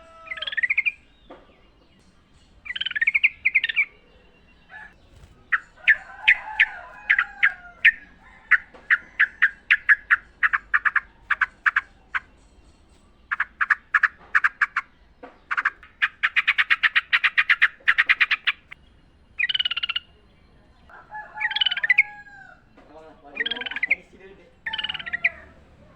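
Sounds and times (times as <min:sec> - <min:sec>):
bird chattering song: 0:00.0 - 0:25.9.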